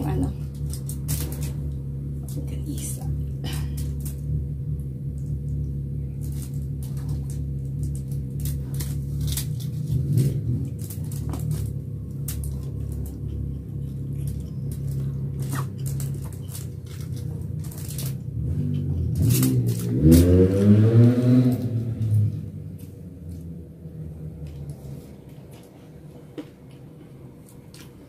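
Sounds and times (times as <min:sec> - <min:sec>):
steady low hum: 0:00.0 - 0:28.0
fingers rustling food on foil: 0:06.2 - 0:20.5.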